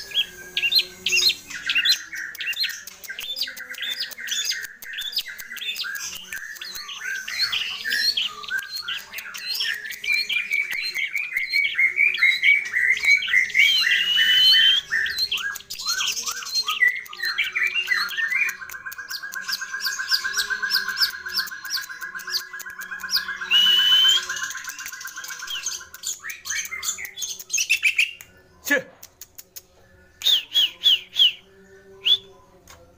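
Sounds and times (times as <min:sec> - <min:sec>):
shrike singing varied song: 0:00.0 - 0:28.7, 0:29.6 - 0:32.6
clear whistle: 0:23.5 - 0:24.3.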